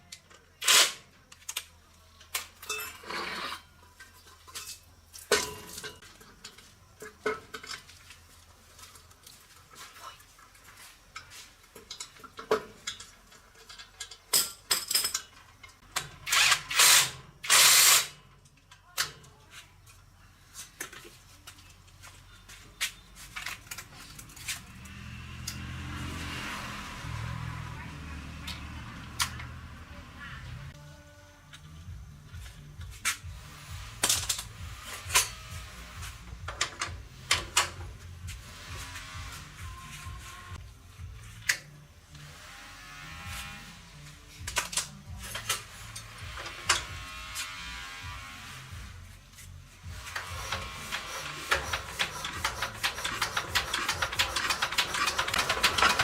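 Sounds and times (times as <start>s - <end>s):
quiet background music: 0.0s - 56.0s
metal parts and tools clinking: 0.1s - 10.4s, 11.0s - 20.0s, 44.4s - 47.0s, 50.0s - 56.0s.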